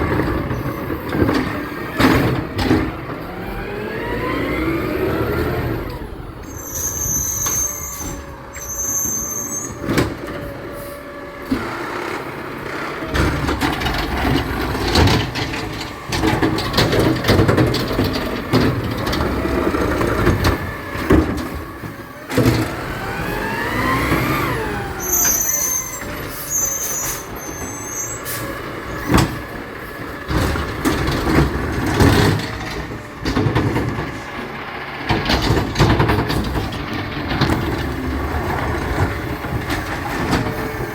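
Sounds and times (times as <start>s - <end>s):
garbage truck engine revving: 0.0s - 40.9s
high-pitched squeals: 6.4s - 10.0s, 23.4s - 28.6s
knocks and clanks: 11.5s - 23.1s, 28.9s - 40.9s.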